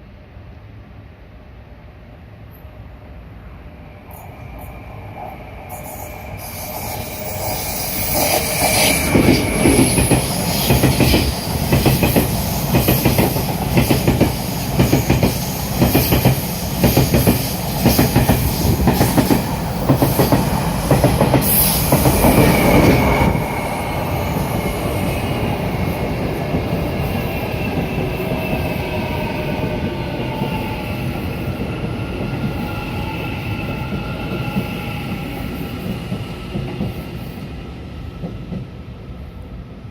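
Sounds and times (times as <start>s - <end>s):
train rumble: 0.0s - 39.6s
train wheels clacking over rail joints: 8.1s - 23.4s.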